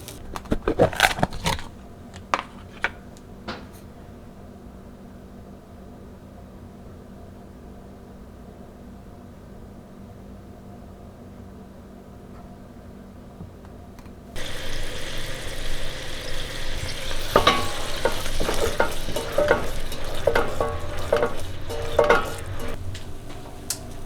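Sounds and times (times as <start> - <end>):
food sizzling in a pan: 14.4 - 24.0
utensil scraping a pan: 14.4 - 24.0.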